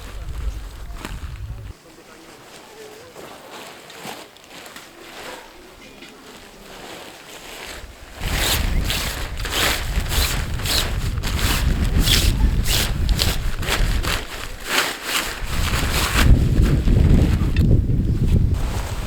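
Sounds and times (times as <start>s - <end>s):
wind buffeting microphone: 0.0s - 1.8s, 7.7s - 19.0s
short rustling strokes: 0.0s - 19.0s.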